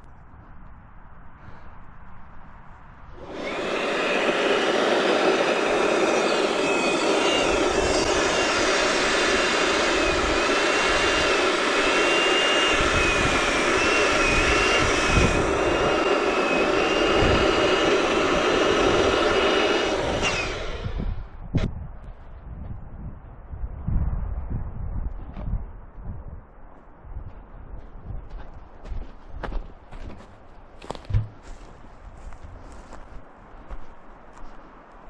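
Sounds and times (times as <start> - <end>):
electric balloon inflator whine: 3.1 - 21.4.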